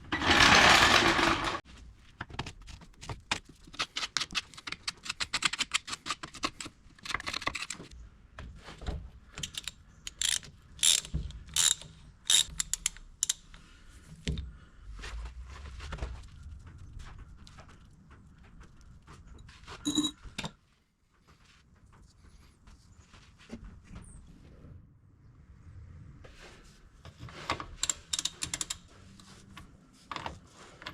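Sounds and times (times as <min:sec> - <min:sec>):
ratchet clicking: 0:09.4 - 0:13.5, 0:27.8 - 0:28.8
ringing metal clink: 0:19.9 - 0:20.2.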